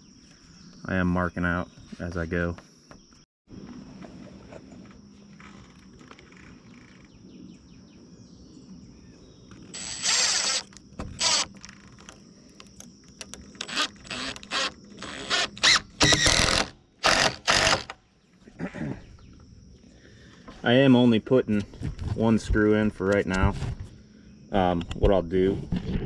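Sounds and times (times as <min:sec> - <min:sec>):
high insect drone: 0:00.0 - 0:22.9, 0:23.6 - 0:26.0
power driver driving screw: 0:09.8 - 0:12.2, 0:13.2 - 0:18.0.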